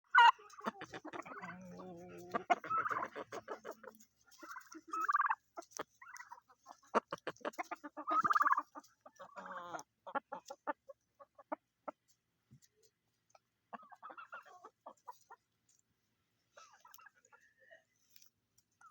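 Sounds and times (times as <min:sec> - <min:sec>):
turkeys gobbling: 0:00.1 - 0:12.1, 0:13.7 - 0:15.5, 0:16.5 - 0:17.4.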